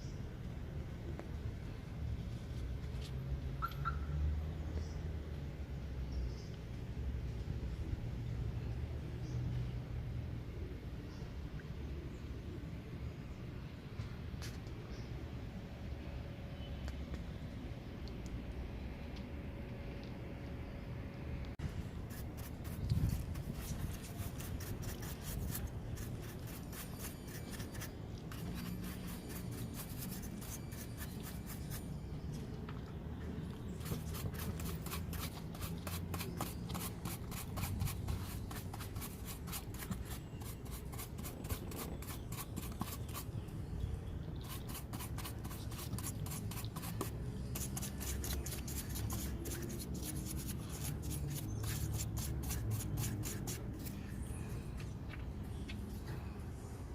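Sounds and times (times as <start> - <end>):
brush scrubbing: 22.1 - 31.8, 33.8 - 43.3, 44.4 - 54.0.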